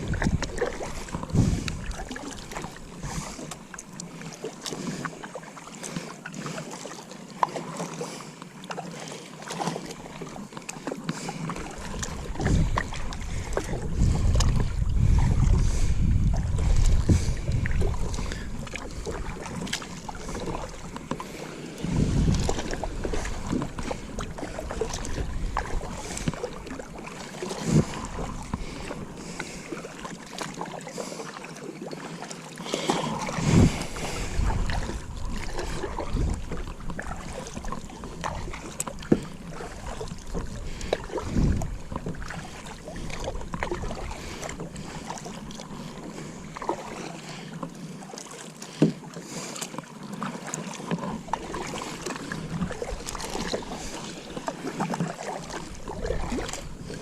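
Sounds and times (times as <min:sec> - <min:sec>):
wind on microphone: 0:00.0 - 0:03.4, 0:11.8 - 0:20.9, 0:21.8 - 0:29.2, 0:33.1 - 0:38.6, 0:39.5 - 0:44.5, 0:55.5 - 0:57.0
water lapping against hull: 0:00.0 - 0:57.0
knocks against boat: 0:48.8 - 0:49.0.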